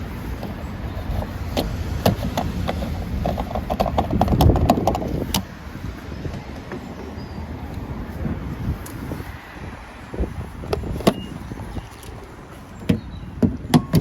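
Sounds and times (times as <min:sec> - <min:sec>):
sharp clicks and knocks: 0:00.4 - 0:05.5, 0:12.8 - 0:14.0.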